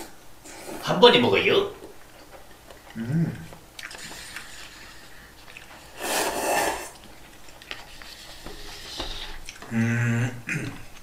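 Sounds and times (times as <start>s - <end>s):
wet chewing clicks: 2.0s - 6.0s, 6.9s - 8.4s, 9.0s - 9.7s.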